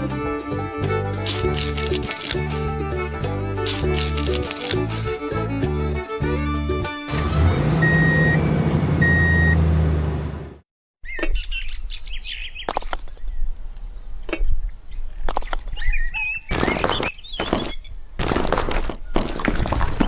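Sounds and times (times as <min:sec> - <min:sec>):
short beeps: 0:07.8 - 0:08.4, 0:09.0 - 0:09.6.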